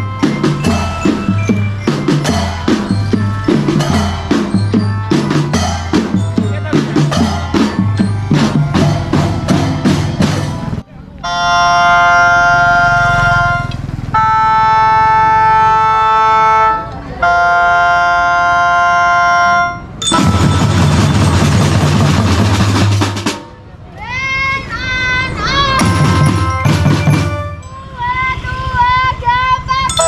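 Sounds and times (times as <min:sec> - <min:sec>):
marching drums beating: 0:00.0 - 0:16.5, 0:20.0 - 0:23.8, 0:25.4 - 0:27.7
wind instruments holding chords: 0:00.0 - 0:30.0.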